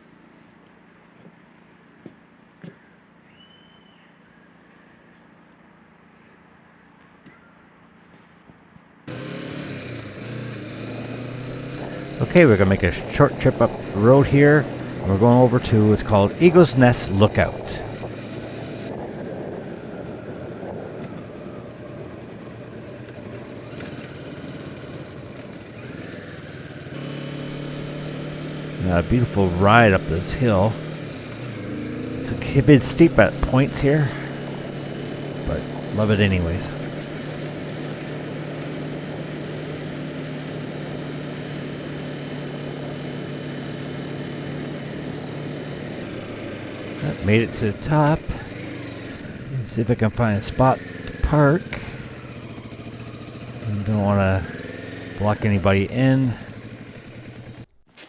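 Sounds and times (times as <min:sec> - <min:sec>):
motorcycle engine running: 0:11.4 - 0:18.1, 0:27.3 - 0:37.6, 0:46.0 - 0:57.8
steady noisy rush: 0:11.4 - 0:18.1, 0:27.4 - 0:37.5.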